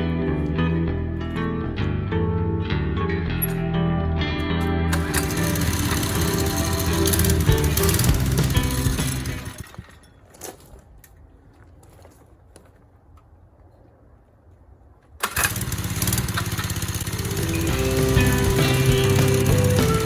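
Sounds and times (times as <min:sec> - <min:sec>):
small motorbike engine: 0:04.9 - 0:09.7, 0:15.2 - 0:20.0.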